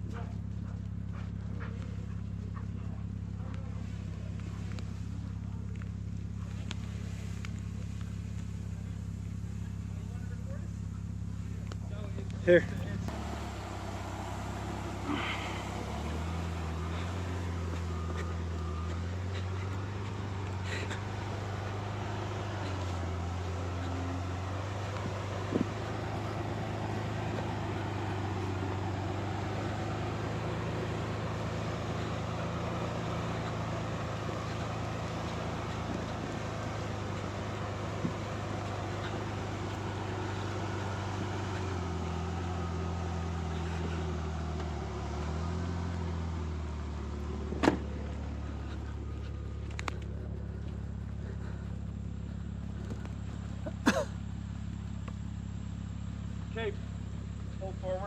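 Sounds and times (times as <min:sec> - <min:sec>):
vehicle engine revving: 0:00.0 - 0:58.0
faint clicks: 0:49.6 - 0:50.8.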